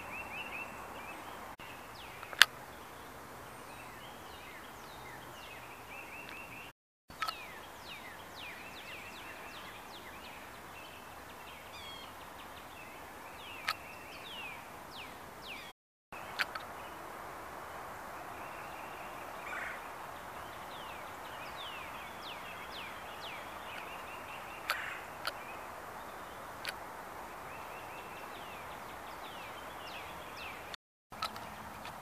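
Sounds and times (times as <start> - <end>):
steady background hiss: 0.0 - 32.0
birds whistling: 18.4 - 26.8.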